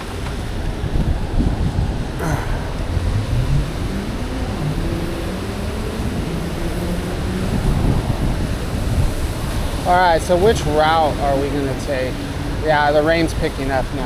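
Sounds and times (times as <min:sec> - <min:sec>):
low traffic rumble: 0:00.0 - 0:14.0
vehicle engines passing: 0:00.0 - 0:14.0.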